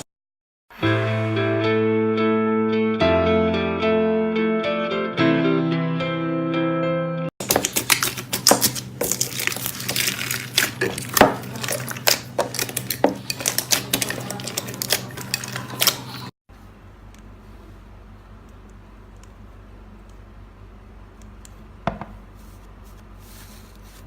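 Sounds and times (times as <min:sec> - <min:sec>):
guitar music: 0:00.8 - 0:07.3.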